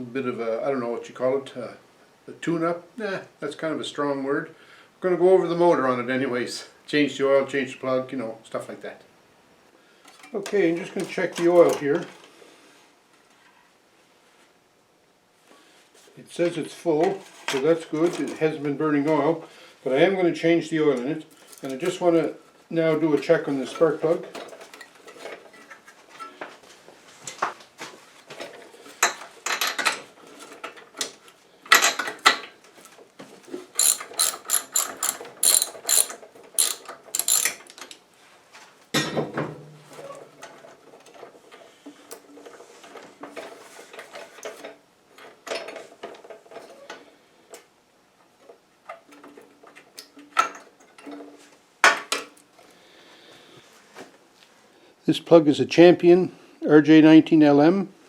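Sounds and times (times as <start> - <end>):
metal tools clinking: 33.8 - 38.0
socket ratchet clicking: 33.8 - 38.0.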